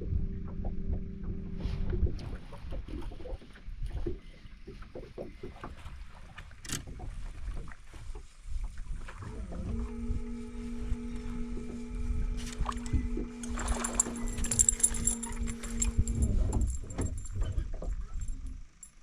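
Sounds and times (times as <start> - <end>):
knocks and handling clatter: 13.4 - 19.0.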